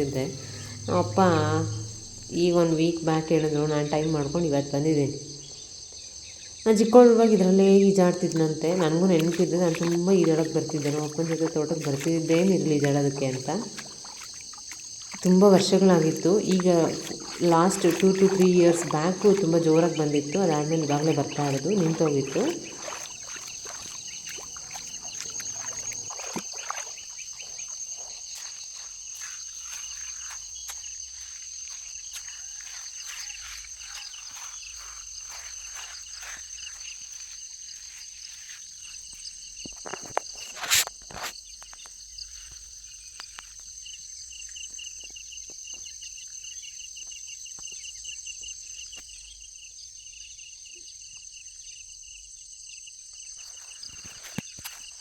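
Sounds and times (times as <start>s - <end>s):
insects shrilling: 5.3s - 41.8s.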